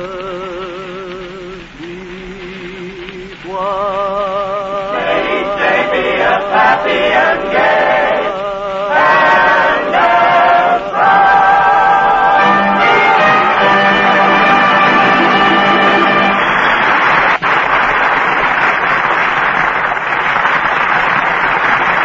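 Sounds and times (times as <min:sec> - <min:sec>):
choir singing in harmony: 0:03.6 - 0:16.6.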